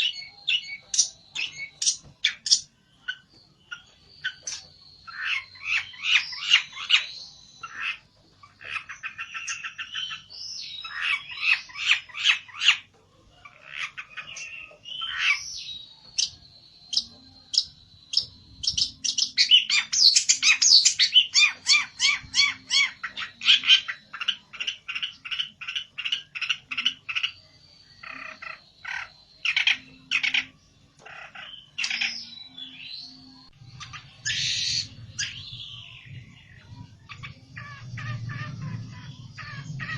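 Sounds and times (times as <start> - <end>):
songbird chattering song: 0.0 - 39.9
thin steady high tone: 14.4 - 24.3.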